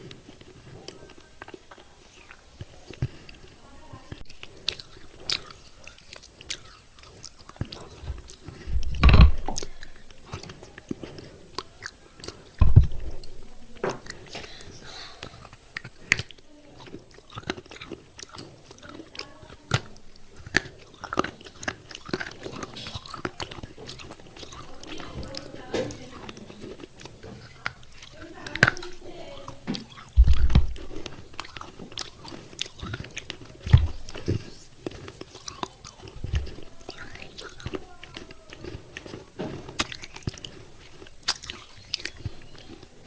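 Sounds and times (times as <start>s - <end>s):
chewing and crunching clay: 0.0s - 43.0s
loud low thumps: 12.6s - 13.7s, 30.2s - 30.9s.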